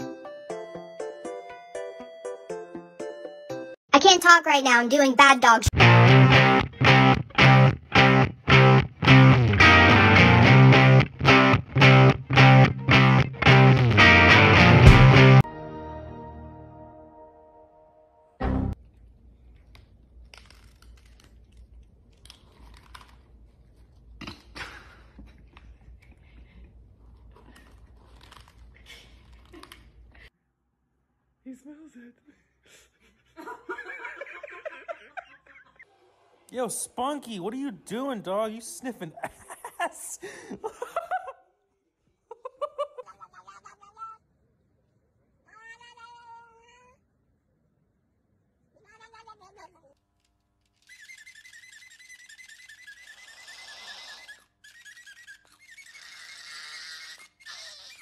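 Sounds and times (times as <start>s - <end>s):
cats crunching dry kibble: 18.9s - 24.2s, 25.3s - 30.1s.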